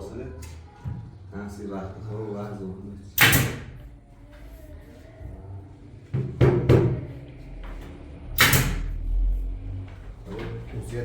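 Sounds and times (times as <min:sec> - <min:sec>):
loud knocks of hard objects: 0:06.2 - 0:07.1.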